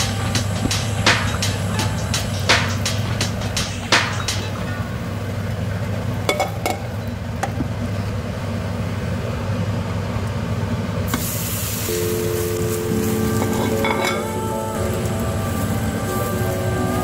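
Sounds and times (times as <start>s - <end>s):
pan knocking: 6.3s - 7.7s, 13.3s - 14.4s
omelette sizzling in a frying pan: 11.1s - 17.0s.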